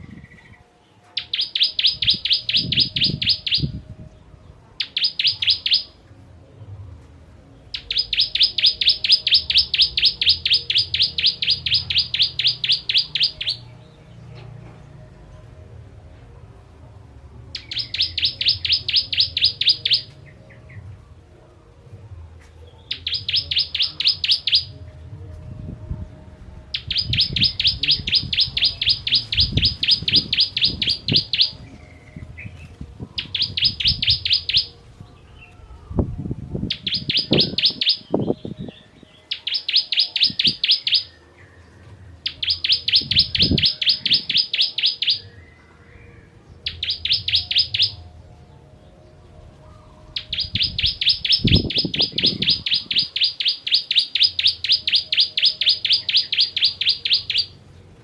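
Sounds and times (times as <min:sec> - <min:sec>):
bird singing rapid high notes: 0:01.2 - 0:03.8, 0:04.8 - 0:06.0, 0:07.7 - 0:13.9, 0:17.6 - 0:20.5, 0:22.8 - 0:24.8, 0:26.7 - 0:35.5, 0:36.6 - 0:41.5, 0:42.2 - 0:45.6, 0:46.2 - 0:48.1, 0:50.0 - 0:57.8.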